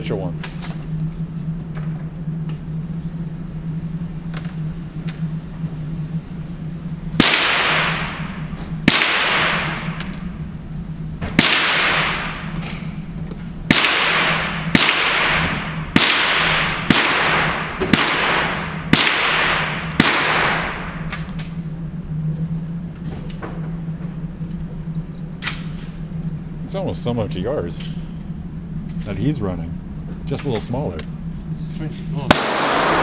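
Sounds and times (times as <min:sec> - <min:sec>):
gunshots: 0:07.2 - 0:10.2, 0:11.2 - 0:12.8, 0:13.7 - 0:21.3, 0:32.3 - 0:33.0.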